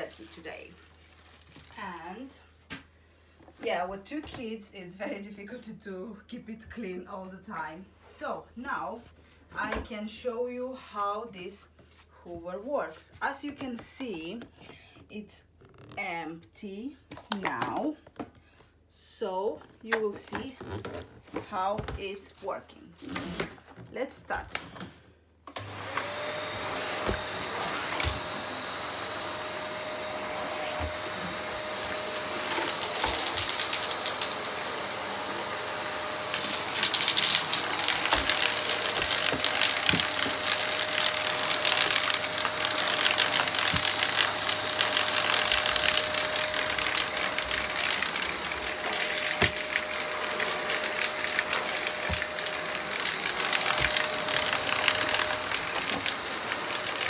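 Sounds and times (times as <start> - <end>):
vacuum cleaner running: 25.5 - 57.0
grit rattling up vacuum hose: 26.6 - 57.0.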